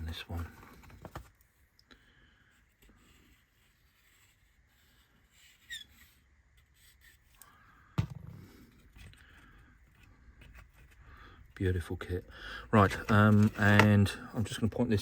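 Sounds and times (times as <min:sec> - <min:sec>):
handling wooden parts: 0:00.0 - 0:01.5, 0:12.7 - 0:14.6.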